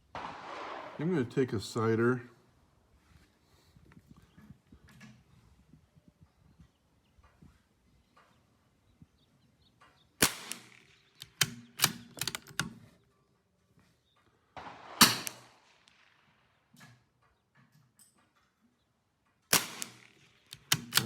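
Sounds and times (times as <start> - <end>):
rifle shots with echo: 0.0 - 1.7, 10.2 - 12.8, 14.6 - 16.6, 19.5 - 21.0
rifle bolt metallic clicks: 10.2 - 12.9, 19.5 - 21.0.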